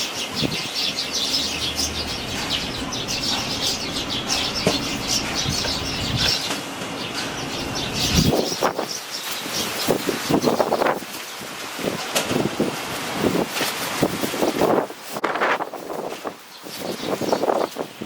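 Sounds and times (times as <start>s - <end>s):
wind rumbling on microphone: 0.0s - 6.6s, 7.4s - 18.0s
young sparrows chirping: 0.0s - 11.1s, 16.1s - 18.0s.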